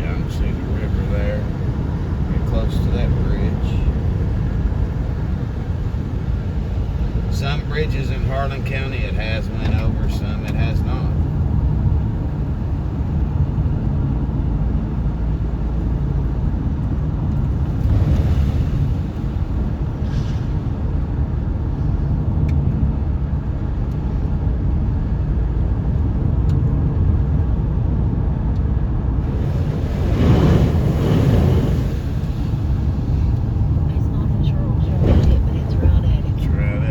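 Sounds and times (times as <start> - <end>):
car engine and tyre rumble: 0.0 - 36.9
rush of noise: 29.2 - 36.9.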